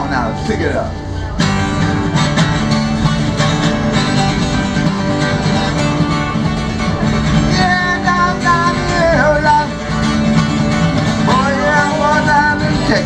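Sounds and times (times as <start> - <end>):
blues guitar playing: 0.0 - 13.0.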